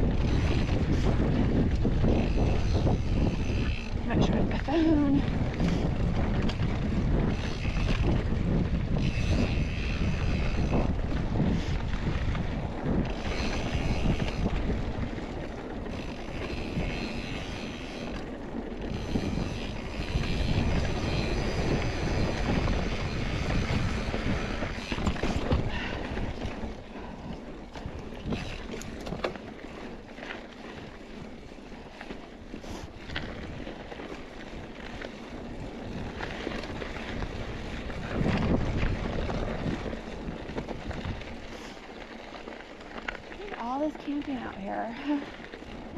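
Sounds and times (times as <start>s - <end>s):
bike rattling over dirt trail: 0.0s - 45.9s
wind buffeting microphone: 0.0s - 45.9s.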